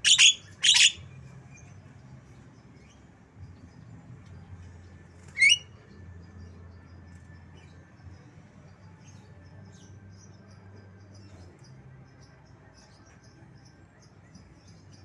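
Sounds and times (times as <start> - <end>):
faint bird chirps: 5.3 - 5.8.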